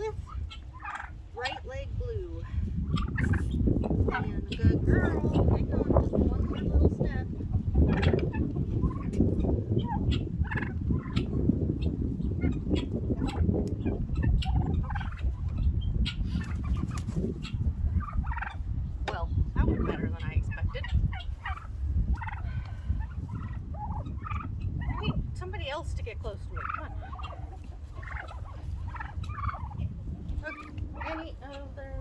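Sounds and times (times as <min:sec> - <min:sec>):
turkeys calling: 0:00.0 - 0:32.0
heavy low rumble: 0:01.3 - 0:15.9.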